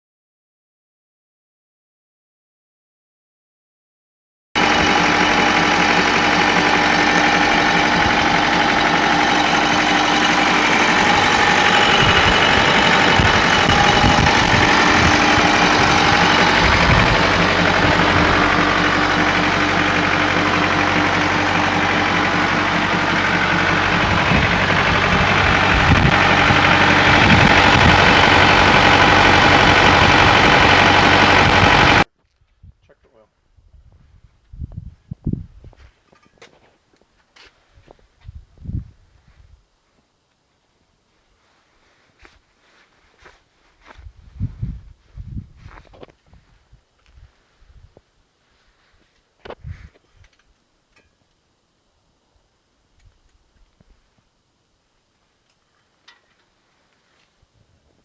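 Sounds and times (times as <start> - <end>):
tractor diesel engine idling: 4.6 - 32.1.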